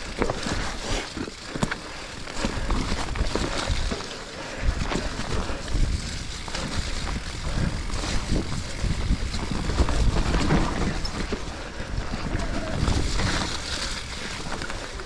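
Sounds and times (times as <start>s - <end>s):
bike rattling: 0.0s - 15.0s
tyres rumbling on trail: 0.0s - 15.0s
wind buffeting microphone: 4.6s - 15.0s.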